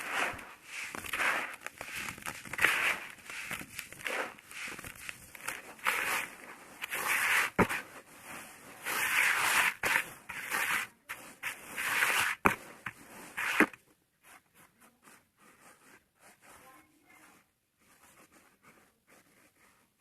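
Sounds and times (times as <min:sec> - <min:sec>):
sand crunching and crumbling: 0:00.0 - 0:13.8.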